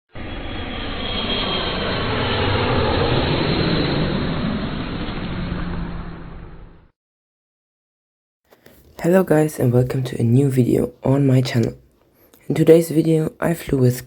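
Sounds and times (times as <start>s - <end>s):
jet airliner passing by: 0.1s - 6.9s.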